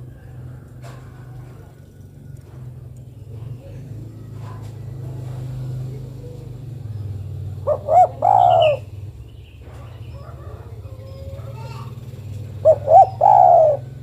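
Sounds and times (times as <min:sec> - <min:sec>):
dove cooing: 0:07.4 - 0:09.0, 0:09.7 - 0:14.0.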